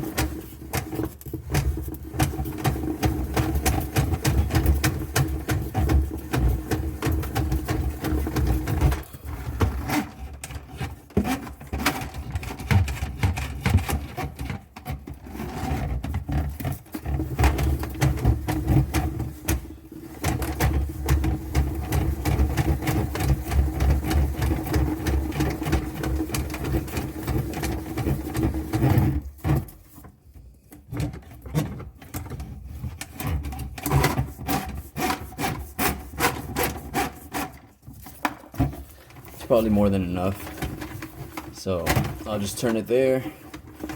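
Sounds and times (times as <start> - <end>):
drain snake scraping in pipe: 32.7 - 43.9.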